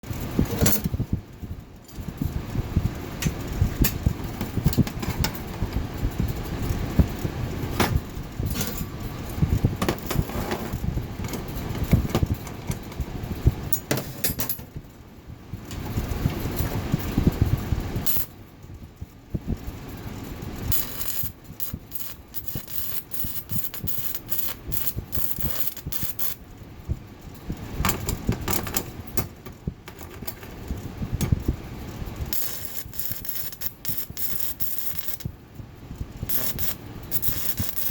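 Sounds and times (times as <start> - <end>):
electric arc welding crackle: 16.8 - 18.4, 20.5 - 26.4, 32.1 - 35.4, 36.0 - 37.9.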